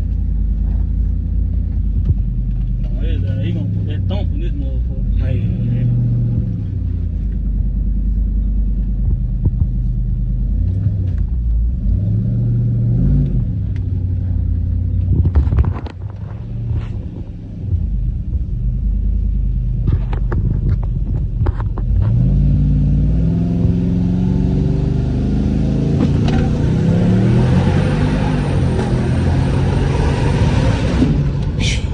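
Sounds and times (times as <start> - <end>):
truck engine revving: 2.0 - 7.2, 8.8 - 15.3, 21.8 - 31.9.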